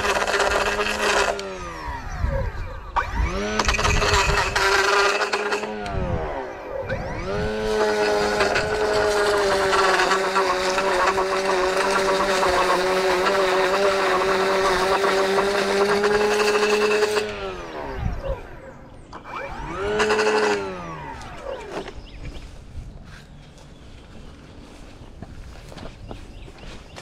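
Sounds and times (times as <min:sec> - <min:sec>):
lawn edger whining: 0:00.0 - 0:24.9.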